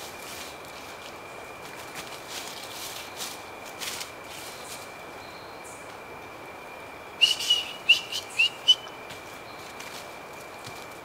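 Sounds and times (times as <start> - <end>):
bird whistling call: 7.2 - 8.9.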